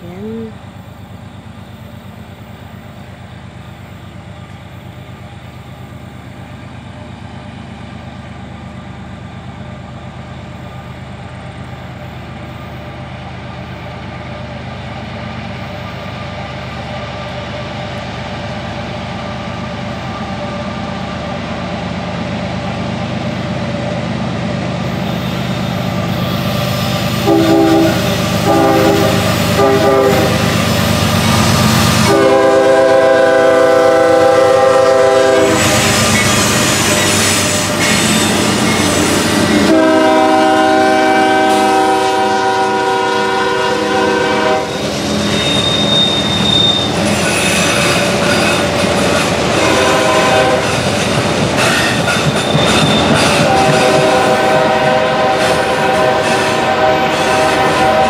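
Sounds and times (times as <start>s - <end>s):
train horn short blasts: 27.2s - 30.5s, 32.0s - 36.7s, 39.6s - 44.8s, 49.5s - 50.8s, 53.0s - 58.0s.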